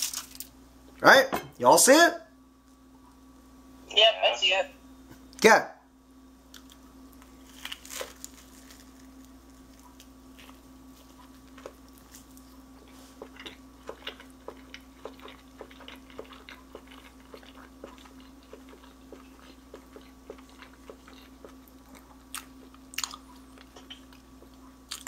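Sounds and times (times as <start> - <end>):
person chewing crunchy chicken: 6.6 - 25.0.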